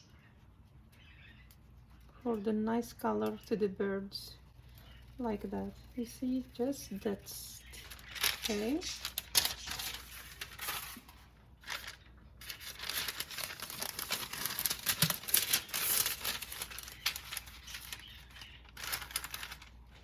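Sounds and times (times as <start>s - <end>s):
aluminium foil crinkling: 4.6s - 20.0s.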